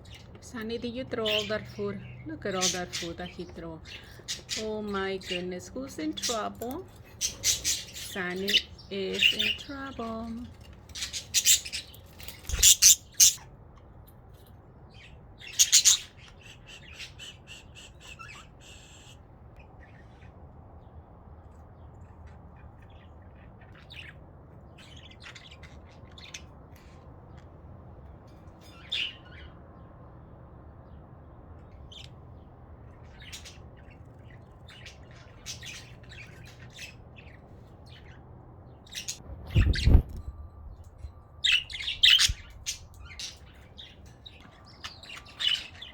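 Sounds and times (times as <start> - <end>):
budgerigars squawking and chirping: 1.2 - 13.5, 15.0 - 20.4, 32.9 - 38.2, 38.8 - 40.2, 41.4 - 45.9.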